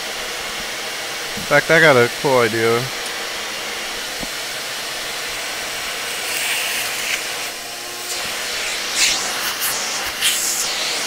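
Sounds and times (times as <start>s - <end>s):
vacuum or blower whooshing: 3.2s - 11.0s
hissing rushes of air: 4.9s - 11.0s.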